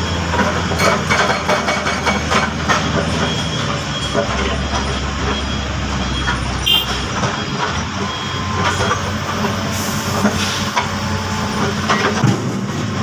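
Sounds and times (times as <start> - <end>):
heavy diesel machinery running: 0.0 - 13.0.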